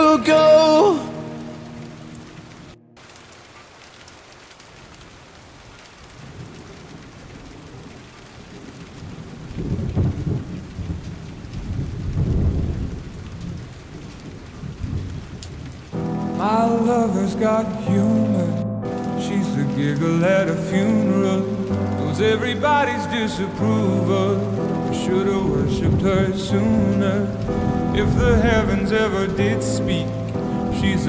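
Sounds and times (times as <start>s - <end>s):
steady rain: 0.0s - 31.0s
thunder rolling: 8.6s - 31.0s.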